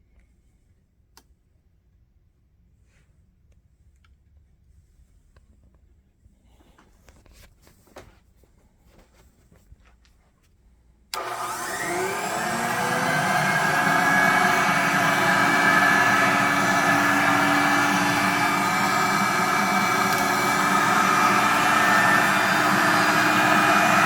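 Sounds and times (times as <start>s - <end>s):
vacuum cleaner motor whining: 11.2s - 24.0s.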